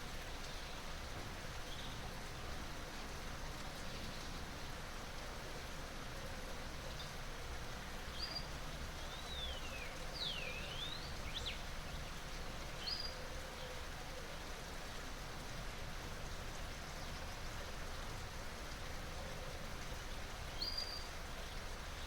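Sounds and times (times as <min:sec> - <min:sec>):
flowing water rushing: 0:00.0 - 0:22.0.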